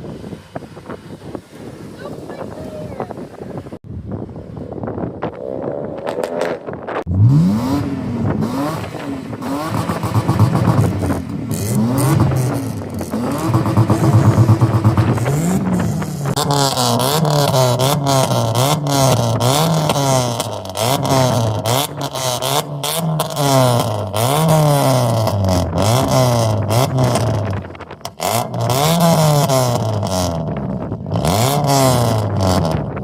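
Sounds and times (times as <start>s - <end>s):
car engine revving: 5.2s - 33.0s.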